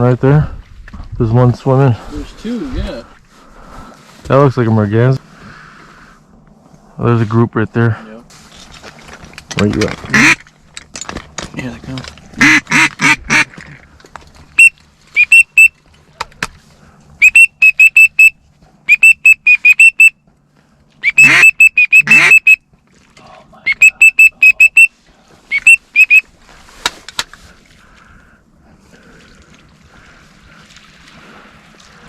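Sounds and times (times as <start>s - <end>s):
duck quacks: 10.1s - 10.4s, 12.4s - 13.5s, 21.0s - 22.6s
duck whistle notes: 14.6s - 15.7s, 17.2s - 18.3s, 18.9s - 20.1s, 21.0s - 22.6s, 23.7s - 24.9s, 25.5s - 26.2s.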